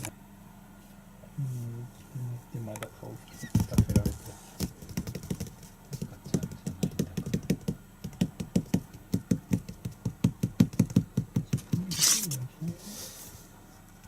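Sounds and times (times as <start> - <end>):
kittens soft tapping: 2.7 - 11.9.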